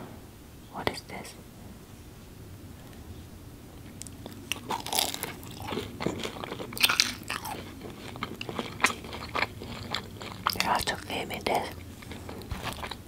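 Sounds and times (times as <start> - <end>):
crunching bites of fried pastry: 3.9 - 13.0.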